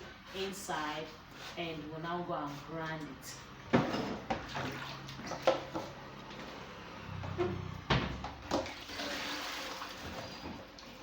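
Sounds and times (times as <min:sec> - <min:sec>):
kitchenware knocking and clattering: 0:03.7 - 0:04.5.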